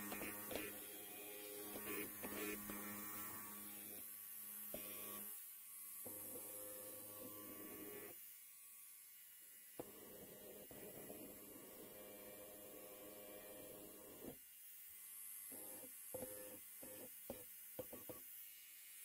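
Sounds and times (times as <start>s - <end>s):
electric hair clipper buzzing: 0.0s - 19.0s.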